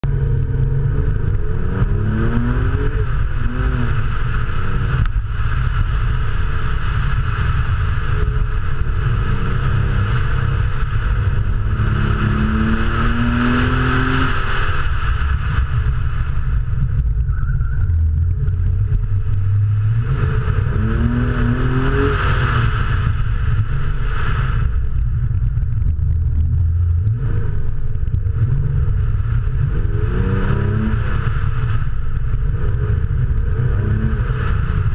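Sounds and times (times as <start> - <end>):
car engine accelerating: 0.0 - 34.9.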